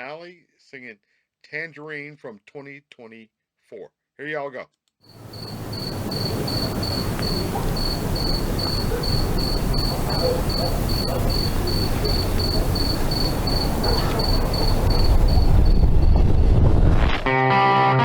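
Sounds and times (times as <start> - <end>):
cricket chirping: 5.0 - 16.7
low rumble and hiss: 5.2 - 16.7.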